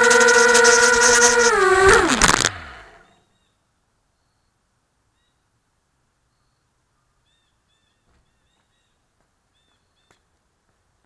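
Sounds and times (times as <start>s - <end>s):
faint bird chirps: 3.0s - 5.5s, 6.2s - 10.3s.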